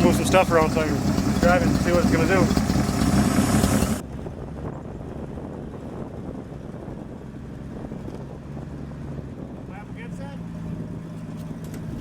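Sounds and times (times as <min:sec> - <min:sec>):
truck engine idling: 0:00.0 - 0:04.0.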